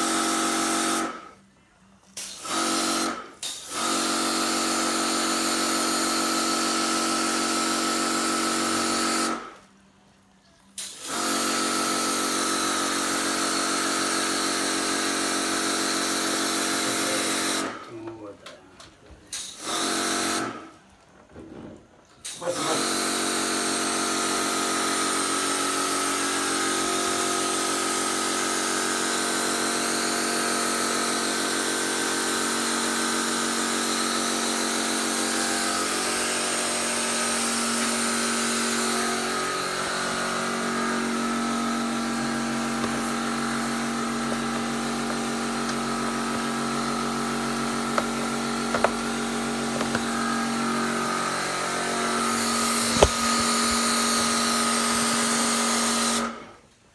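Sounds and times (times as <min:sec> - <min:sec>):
pressure washer motor hum: 0:11.0 - 0:17.8, 0:22.5 - 0:56.5.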